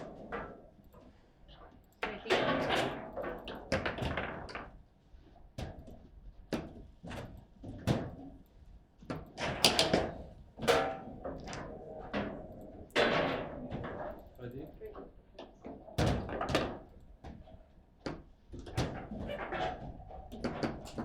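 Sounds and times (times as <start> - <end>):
table football knocks and thuds: 16.0 - 17.4, 20.2 - 21.0.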